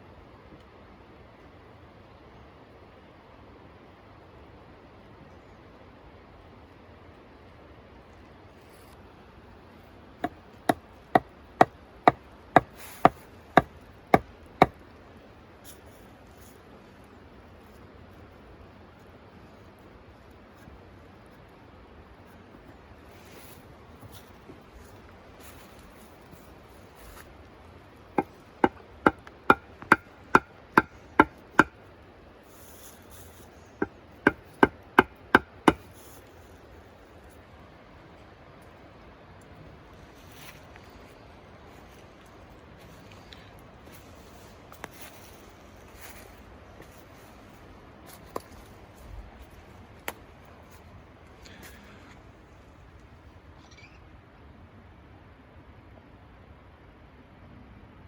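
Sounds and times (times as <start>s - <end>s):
tool chopping wood: 10.2s - 14.8s, 28.2s - 31.8s, 33.8s - 35.9s.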